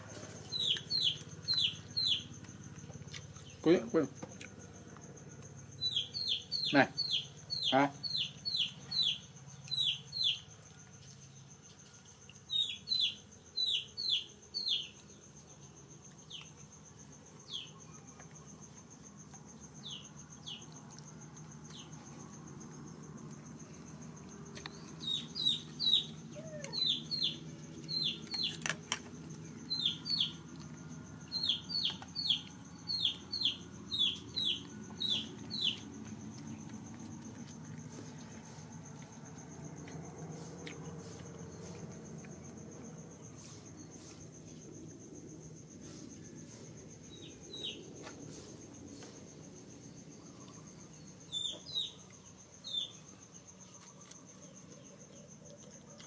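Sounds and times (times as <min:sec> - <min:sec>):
high insect drone: 0:00.0 - 0:56.0
bird chirps: 0:00.5 - 0:02.3, 0:05.8 - 0:10.4, 0:12.5 - 0:15.0, 0:24.6 - 0:28.6, 0:29.6 - 0:30.4, 0:31.3 - 0:35.8, 0:51.3 - 0:52.0.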